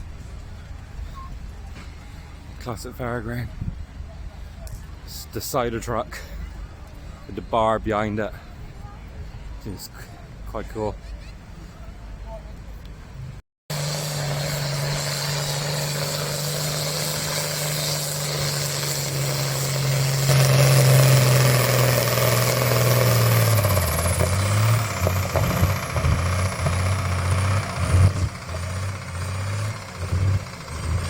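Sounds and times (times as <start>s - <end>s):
high whine: 13.7s - 31.0s
tractor engine running hard: 13.7s - 31.0s.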